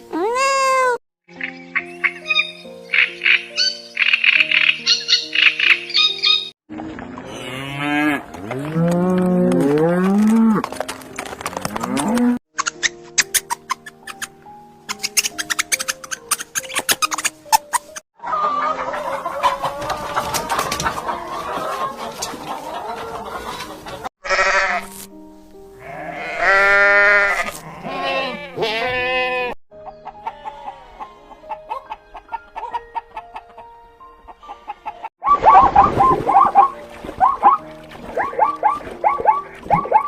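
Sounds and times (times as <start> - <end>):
background music: 0.0 - 40.0
farm animals calling: 1.4 - 6.5, 18.2 - 24.9, 25.8 - 40.0
wavering bleat-like call: 24.2 - 25.0, 25.8 - 29.6, 30.2 - 31.4.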